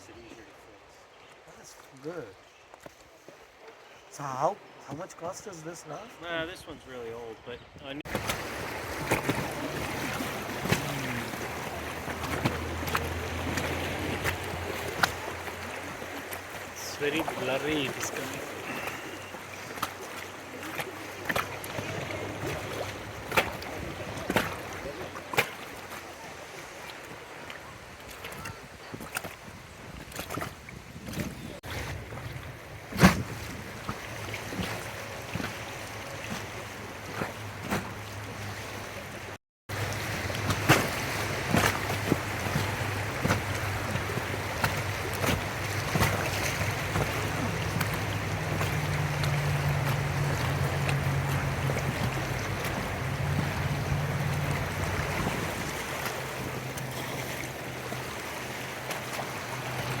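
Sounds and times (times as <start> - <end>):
water splashing and lapping: 0.0 - 60.0
paddles knocking on raft: 8.1 - 31.4, 39.7 - 57.0
wind on microphone: 27.8 - 34.6, 40.1 - 56.6.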